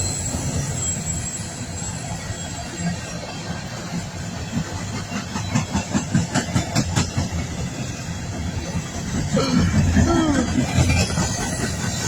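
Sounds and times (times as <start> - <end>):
train cars rumbling past: 0.0 - 12.0
train wheels clacking: 3.9 - 12.0.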